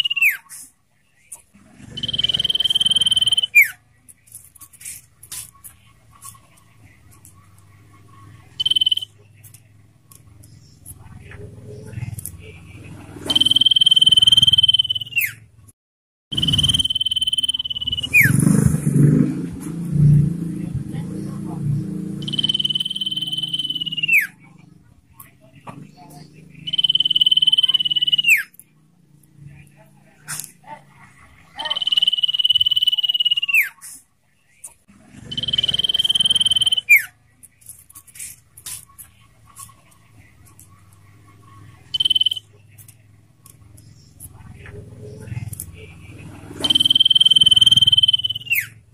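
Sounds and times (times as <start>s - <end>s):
bird trilled whistles: 0.0s - 0.4s, 2.0s - 3.8s, 8.6s - 9.1s, 13.3s - 15.4s, 16.4s - 18.4s, 22.2s - 24.4s, 26.6s - 28.5s, 31.6s - 33.8s, 35.2s - 37.1s, 41.9s - 42.4s, 46.6s - 48.8s.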